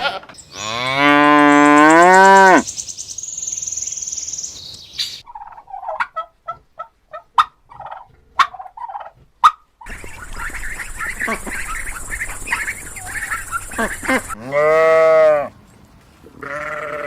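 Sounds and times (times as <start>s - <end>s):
animal bleat: 0.0s - 2.6s, 13.8s - 15.5s, 16.4s - 17.0s
poultry calling: 5.2s - 15.5s, 16.4s - 17.0s.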